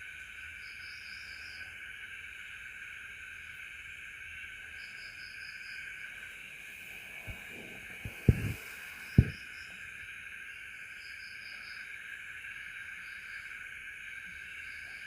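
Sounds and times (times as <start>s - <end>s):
crickets chirping: 0.0s - 15.0s
pulsed insect trill: 0.0s - 15.0s
dull knocks: 8.0s - 9.4s.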